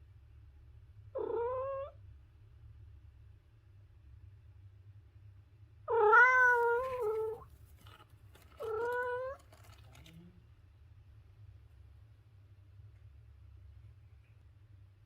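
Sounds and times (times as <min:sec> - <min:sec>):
cat meowing: 0:01.2 - 0:02.0, 0:05.9 - 0:07.4, 0:08.6 - 0:09.5.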